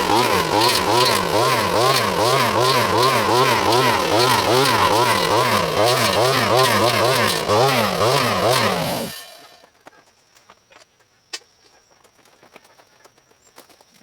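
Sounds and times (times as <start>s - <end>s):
chainsaw cutting: 0.0s - 9.7s.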